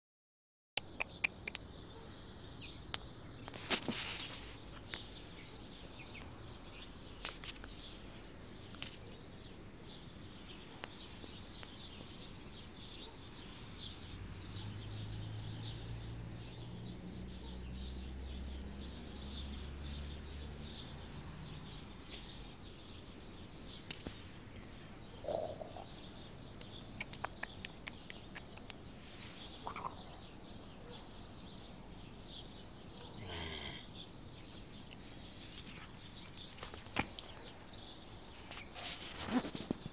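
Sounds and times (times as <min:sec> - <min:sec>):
sharp clicks: 0:00.8 - 0:01.7, 0:26.6 - 0:28.8
small birds chirping: 0:00.8 - 0:39.9.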